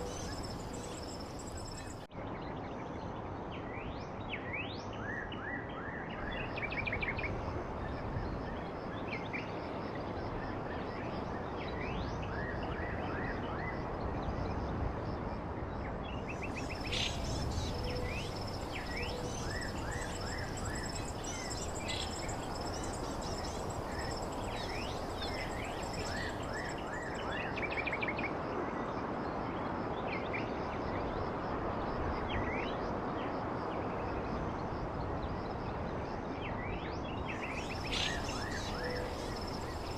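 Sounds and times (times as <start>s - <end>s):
birds chirping: 0.0s - 2.0s, 16.5s - 27.2s
rushing background hiss: 16.4s - 27.2s, 37.4s - 39.9s.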